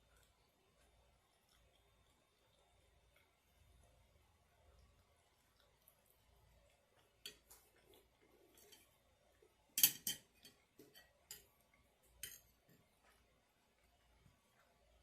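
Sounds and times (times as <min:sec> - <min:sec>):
metal spoon clinking on container: 0:09.8 - 0:11.5, 0:12.2 - 0:12.5.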